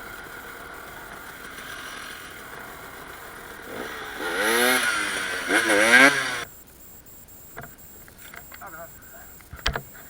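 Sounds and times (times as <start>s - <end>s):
dirt bike engine revving: 0.0s - 6.5s.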